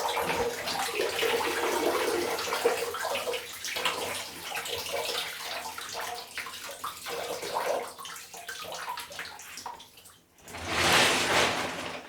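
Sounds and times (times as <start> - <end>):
water sloshing around plastic bricks: 10.4 - 12.0.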